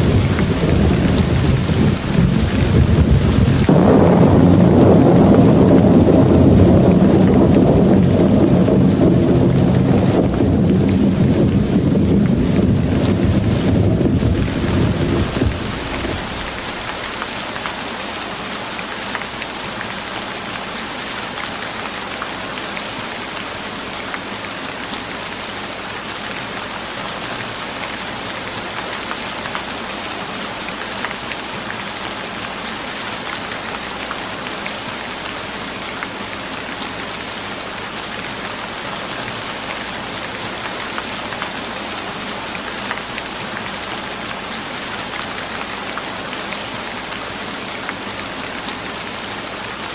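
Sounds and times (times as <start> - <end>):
steady rain hiss: 0.0 - 49.9
low rushing sound: 5.8 - 17.3.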